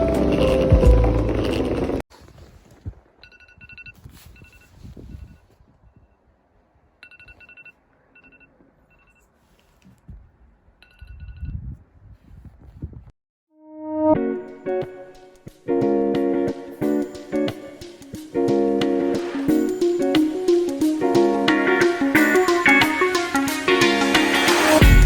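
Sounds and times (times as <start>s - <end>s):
phone ringtone beeps: 3.2s - 4.7s, 7.0s - 9.2s.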